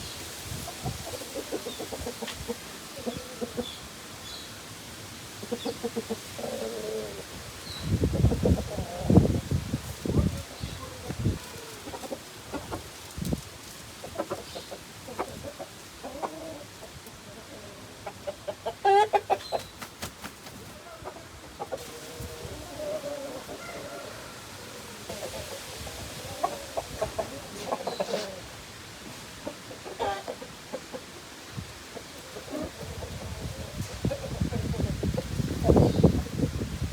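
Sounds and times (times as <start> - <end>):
chickens clucking: 0.0 - 36.9
chicken squawk: 17.4 - 19.6, 20.7 - 28.6, 29.5 - 31.1.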